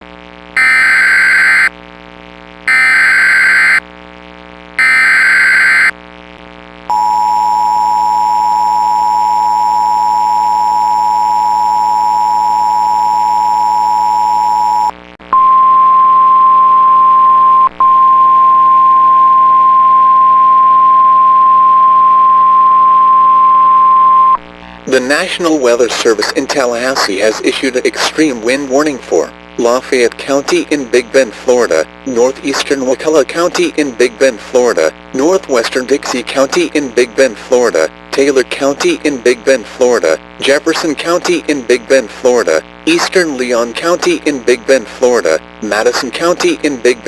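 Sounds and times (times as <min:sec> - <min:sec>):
steady alarm tone: 0:00.6 - 0:01.7, 0:02.7 - 0:03.8, 0:04.8 - 0:06.0.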